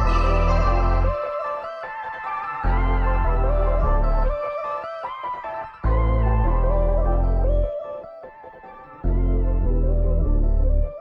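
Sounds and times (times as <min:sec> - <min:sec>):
deep steady bass: 0:00.0 - 0:01.2, 0:02.7 - 0:04.4, 0:05.9 - 0:07.7, 0:09.1 - 0:11.0.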